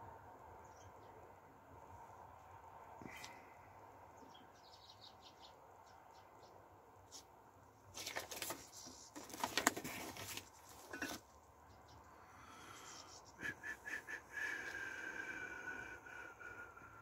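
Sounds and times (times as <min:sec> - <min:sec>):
small birds chirping: 0:00.6 - 0:01.4, 0:04.1 - 0:07.3, 0:11.2 - 0:16.4.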